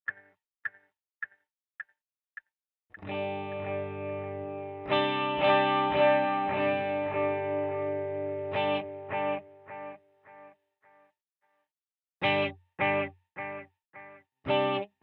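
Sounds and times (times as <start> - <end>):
electric guitar chord with echo: 3.0 - 10.0.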